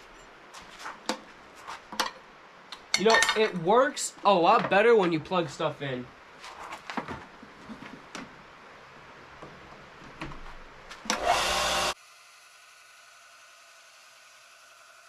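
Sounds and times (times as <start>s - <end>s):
electric sander running: 11.1s - 15.0s.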